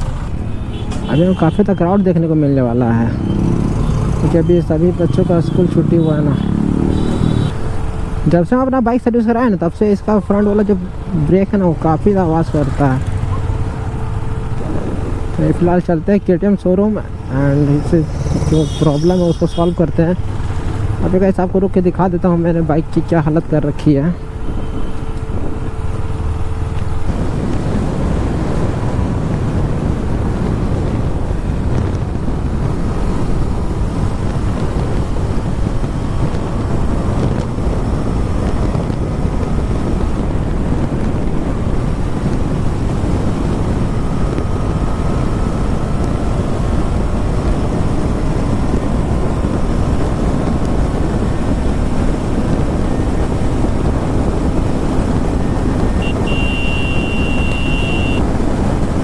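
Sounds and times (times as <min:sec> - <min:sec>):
wind rushing over microphone: 0:00.0 - 0:59.0
faint motorcycle engine: 0:02.4 - 0:08.9.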